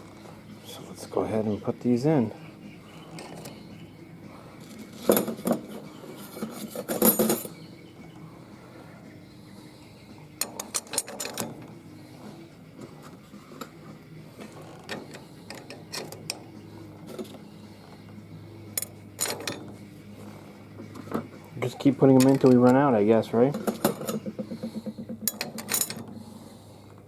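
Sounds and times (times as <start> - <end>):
metal clutch plates clinking: 0.0 - 27.0.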